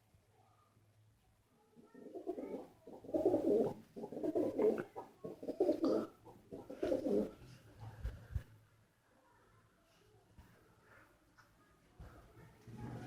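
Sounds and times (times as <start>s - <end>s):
pigeons cooing: 2.1s - 7.4s.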